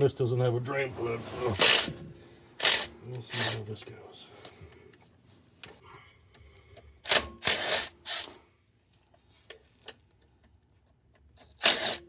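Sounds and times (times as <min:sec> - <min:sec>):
ratchet wrench clicking: 0:07.1 - 0:08.3, 0:11.6 - 0:12.0.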